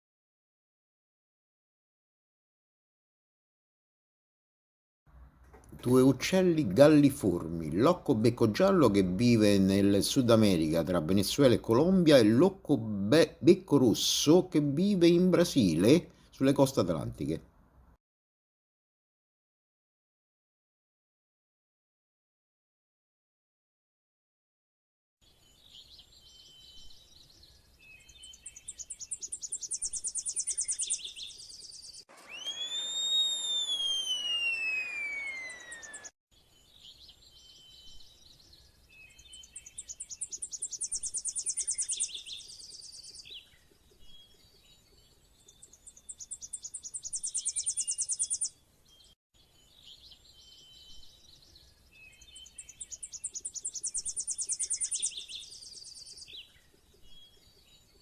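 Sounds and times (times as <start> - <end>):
short bird chirps: 25.8 - 44.6, 45.5 - 57.4
bird trilling fast: 28.3 - 36.1, 39.4 - 43.2, 45.7 - 48.6, 52.4 - 56.2
long downward sliding whistle: 32.1 - 36.2.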